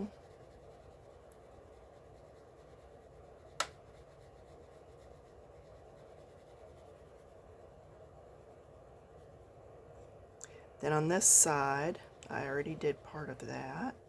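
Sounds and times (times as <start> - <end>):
pencil scratching on paper: 0.0 - 9.9.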